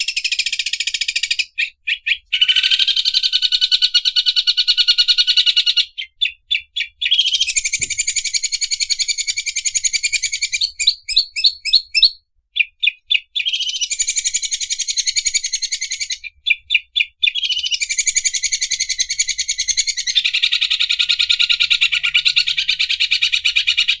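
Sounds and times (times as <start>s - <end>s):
bird singing rattling trills: 0.0s - 24.0s.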